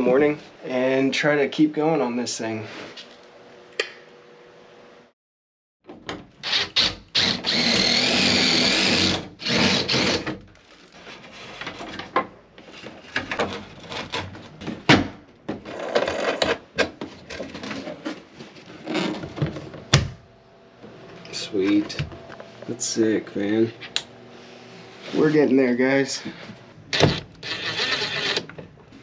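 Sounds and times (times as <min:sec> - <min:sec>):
power drill running: 0:06.4 - 0:10.2, 0:26.9 - 0:28.5.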